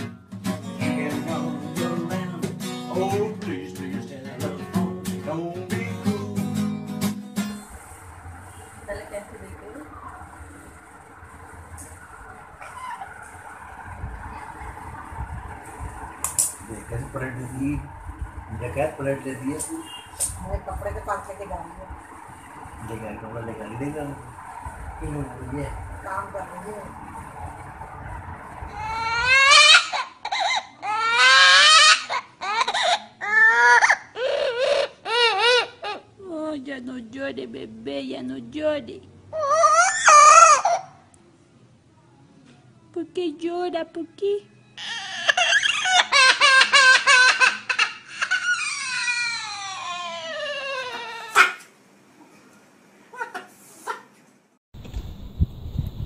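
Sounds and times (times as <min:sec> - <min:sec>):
parrot mimicking baby crying: 0:12.6 - 0:13.1, 0:28.7 - 0:36.2, 0:39.3 - 0:41.1, 0:44.8 - 0:51.7.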